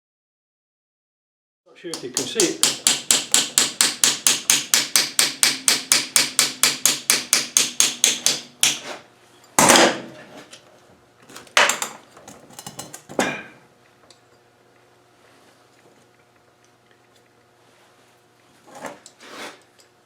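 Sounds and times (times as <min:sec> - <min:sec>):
hammer tapping on metal punch: 0:01.9 - 0:08.8.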